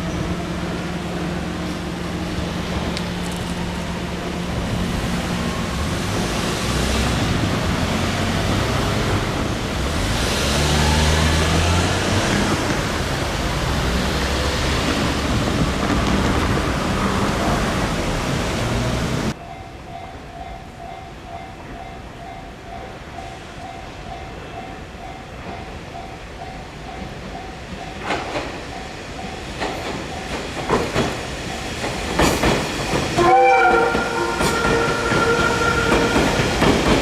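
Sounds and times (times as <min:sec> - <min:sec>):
train passing rushing noise: 0:00.0 - 0:19.9, 0:22.8 - 0:37.0
crossing warning bell chiming: 0:19.3 - 0:28.1.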